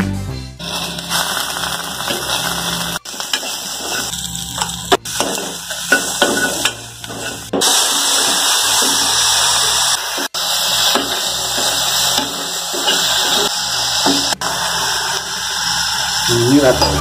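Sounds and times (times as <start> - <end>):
onions sizzling in hot oil: 0.6 - 17.0
metal spatula scraping a pan: 0.7 - 7.7.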